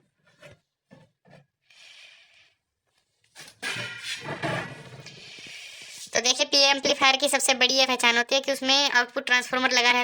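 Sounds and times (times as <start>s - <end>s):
metal cover scraping: 3.6s - 5.5s.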